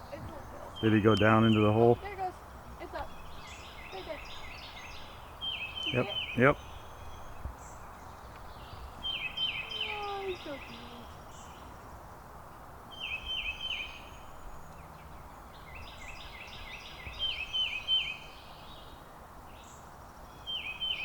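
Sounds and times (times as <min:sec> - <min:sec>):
low outdoor background hum: 0:00.0 - 0:21.0.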